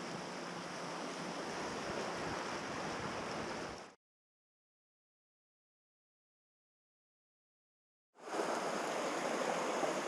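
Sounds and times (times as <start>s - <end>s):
rushing water: 0.0s - 4.0s, 8.2s - 10.0s.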